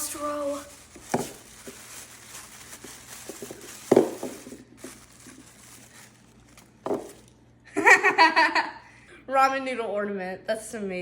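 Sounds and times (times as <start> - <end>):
paper crinkling and rustling: 0.0 - 7.4.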